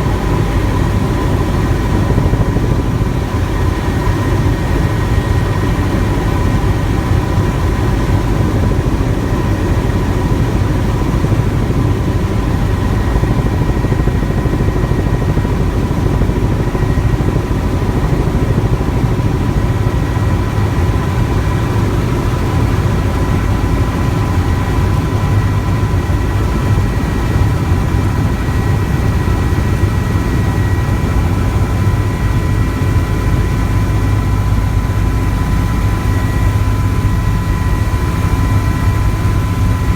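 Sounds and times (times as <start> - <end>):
helicopter rotor and engine rumble: 0.0 - 39.9.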